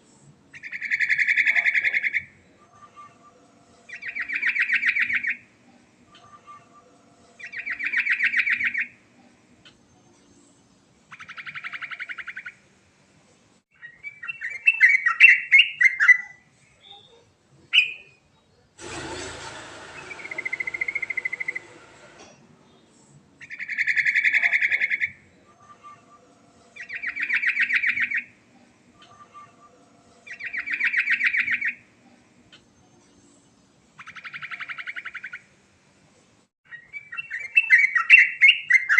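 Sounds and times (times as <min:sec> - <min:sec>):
burst of noise with whistle: 0:18.8 - 0:22.3.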